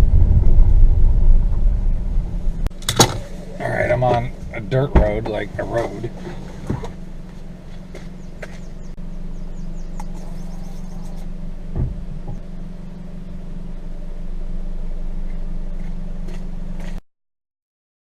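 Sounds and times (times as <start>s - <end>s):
car engine humming: 0.0s - 17.0s
thump: 11.7s - 12.4s.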